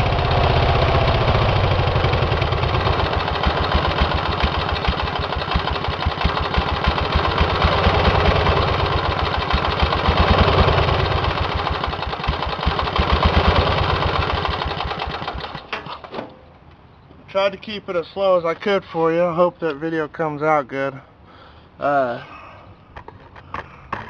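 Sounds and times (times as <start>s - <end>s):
engine running with rapid beat: 0.0s - 15.8s.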